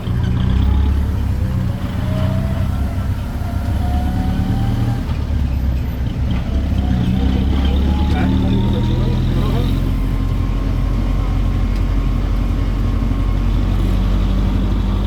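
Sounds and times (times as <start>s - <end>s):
engine rumbling under load: 0.0s - 15.0s.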